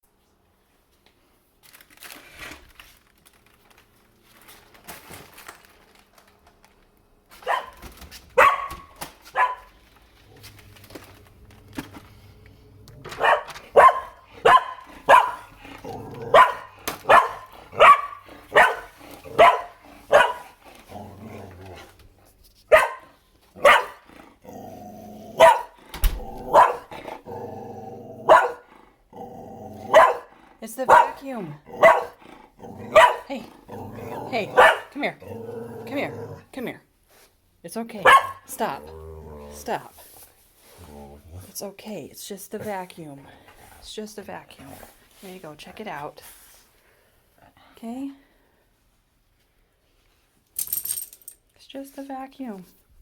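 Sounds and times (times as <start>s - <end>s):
dog barking: 7.4s - 7.8s, 8.4s - 9.7s, 13.1s - 15.6s, 16.3s - 20.6s, 22.7s - 24.0s, 25.4s - 26.9s, 28.2s - 28.7s, 29.8s - 32.2s, 32.8s - 33.3s, 34.3s - 35.0s, 38.0s - 38.5s.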